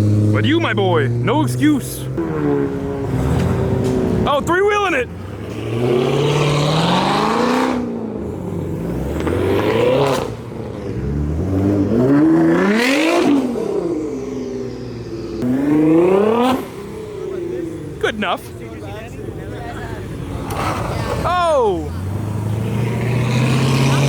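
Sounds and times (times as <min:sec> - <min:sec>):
car engine accelerating hard: 0:00.0 - 0:18.0, 0:19.5 - 0:24.0.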